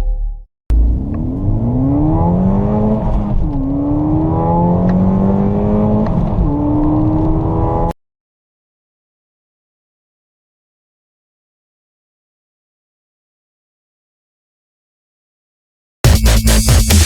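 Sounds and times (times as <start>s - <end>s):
gear upshifts: 0.7s - 7.9s
car engine accelerating: 0.7s - 8.0s.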